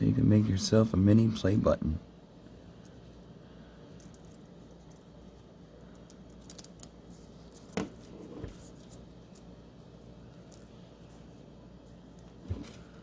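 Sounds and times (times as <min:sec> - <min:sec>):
faint clicks and handling noises: 0:03.8 - 0:13.0.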